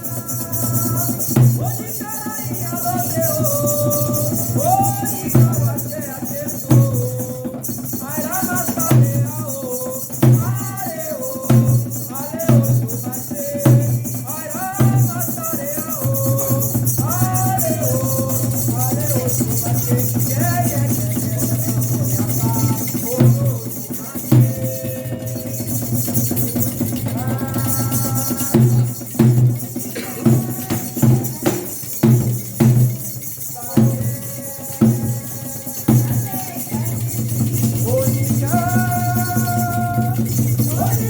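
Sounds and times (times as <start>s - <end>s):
drums: 0.0s - 41.0s
heavy drum strokes: 0.0s - 41.0s
shaken rattles: 0.0s - 41.0s
voices singing: 0.0s - 41.0s.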